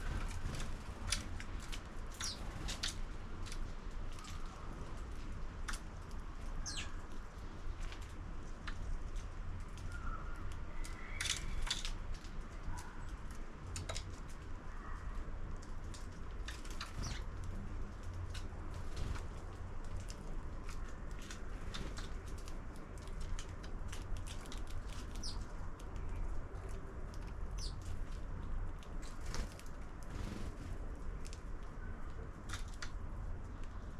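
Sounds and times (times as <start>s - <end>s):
birds clicking and tapping: 0.0s - 4.8s, 9.7s - 30.6s
wings fluttering: 0.0s - 5.8s, 15.7s - 31.5s
birds chirping: 16.9s - 17.3s, 24.8s - 25.5s, 27.6s - 27.8s.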